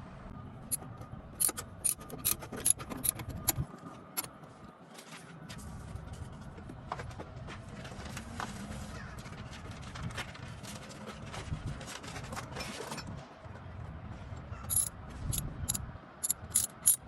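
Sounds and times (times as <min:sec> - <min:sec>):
tools clinking and scraping: 0:00.7 - 0:03.6, 0:14.7 - 0:17.0
sharp metallic clicks: 0:01.4 - 0:03.6, 0:14.7 - 0:17.0.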